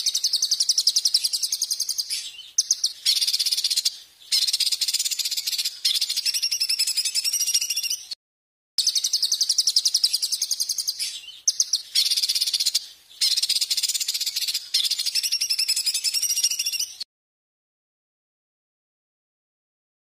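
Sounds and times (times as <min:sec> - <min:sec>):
songbird harsh trills: 0:00.0 - 0:08.2, 0:08.8 - 0:17.0.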